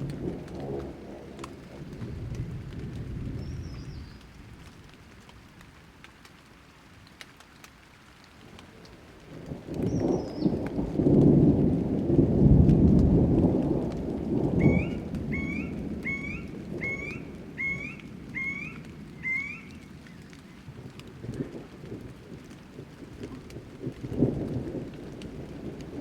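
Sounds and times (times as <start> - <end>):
thunder rumbling: 0.0 - 5.6, 8.7 - 26.0
steady rain: 0.0 - 26.0
bird whistled calls: 14.6 - 20.2.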